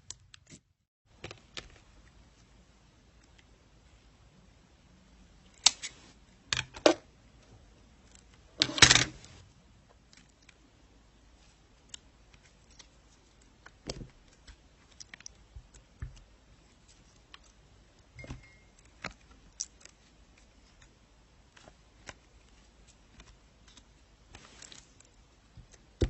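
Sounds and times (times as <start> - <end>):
objects being handled: 8.0 - 10.6, 11.4 - 26.0.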